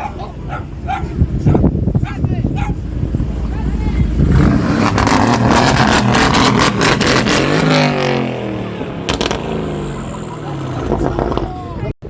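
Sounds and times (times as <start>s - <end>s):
car engine revving high: 2.8s - 11.7s
exhaust crackles and pops: 8.8s - 11.9s.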